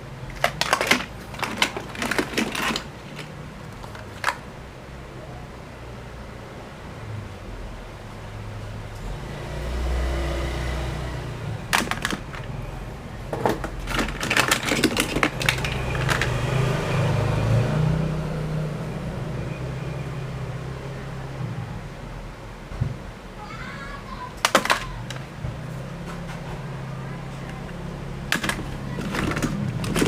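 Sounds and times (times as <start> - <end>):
plastic toys clattering: 0.2 - 4.5, 11.7 - 12.6, 13.3 - 16.5, 24.3 - 25.3, 27.4 - 30.0.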